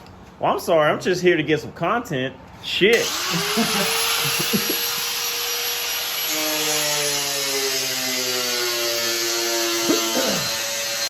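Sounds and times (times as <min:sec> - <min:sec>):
power tool cutting plastic: 0:02.9 - 0:11.0.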